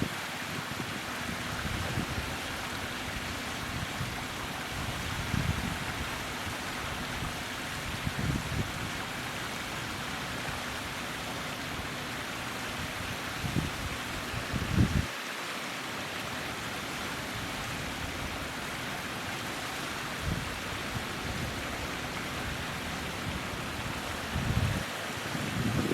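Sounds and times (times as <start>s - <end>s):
stream water rushing: 0.0s - 25.9s.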